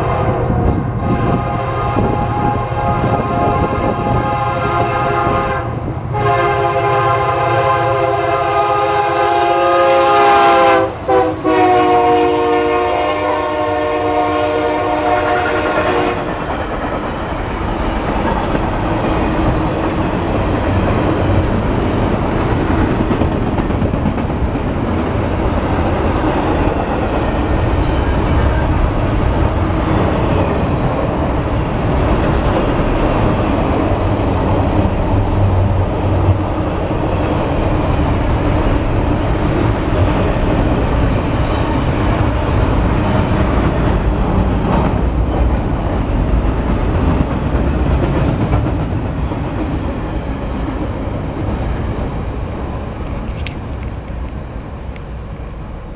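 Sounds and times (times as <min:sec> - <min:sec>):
train cars rolling on rails: 0:00.0 - 0:55.9
locomotive air horn blasts: 0:01.0 - 0:16.3.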